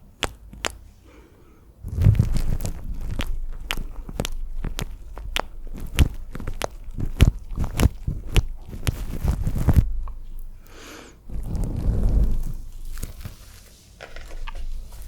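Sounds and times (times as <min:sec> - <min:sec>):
wet mouth clicks and smacks: 0:00.0 - 0:00.8, 0:01.9 - 0:10.8.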